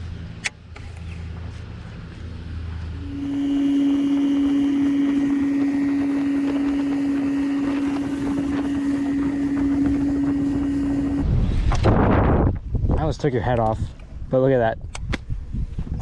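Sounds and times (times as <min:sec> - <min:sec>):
loud wind or handling rumble: 0:00.0 - 0:16.0
wind noise: 0:01.1 - 0:16.0
water wash: 0:01.5 - 0:11.3
electric motor humming: 0:02.8 - 0:11.3.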